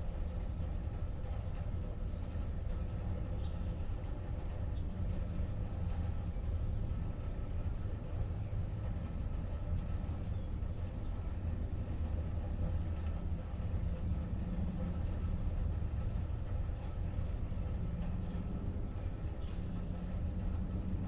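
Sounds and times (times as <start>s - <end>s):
faint drip-like ticks: 0.0s - 21.0s.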